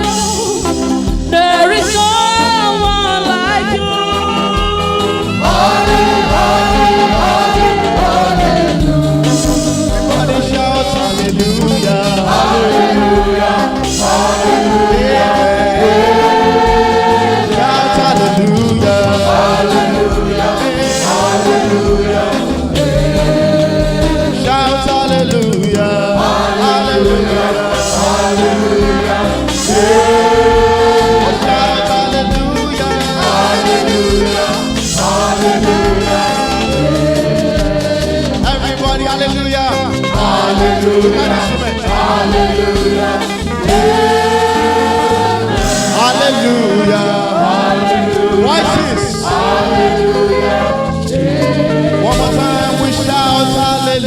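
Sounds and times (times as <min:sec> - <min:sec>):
gospel group singing: 0:00.0 - 0:54.0
instrumental accompaniment with steady beat: 0:00.0 - 0:54.0.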